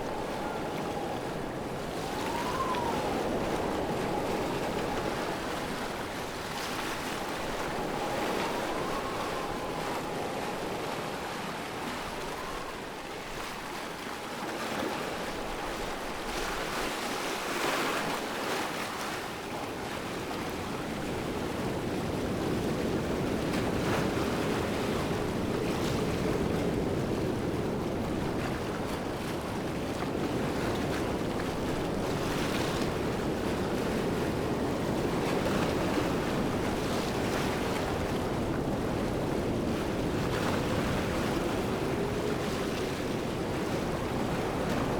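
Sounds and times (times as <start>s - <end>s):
waterfall rushing: 0.0s - 5.8s.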